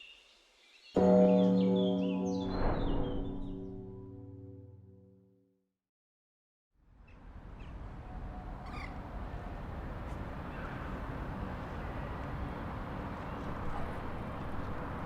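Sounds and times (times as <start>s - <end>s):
outdoor background noise: 6.8s - 15.0s.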